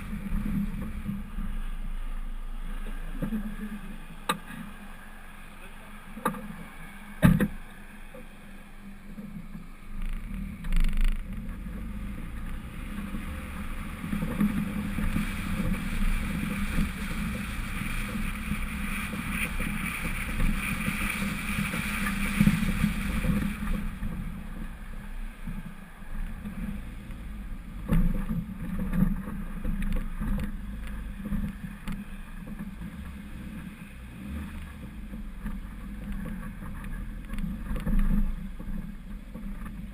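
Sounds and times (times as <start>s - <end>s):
muffled engine and road rumble: 0.0s - 39.9s.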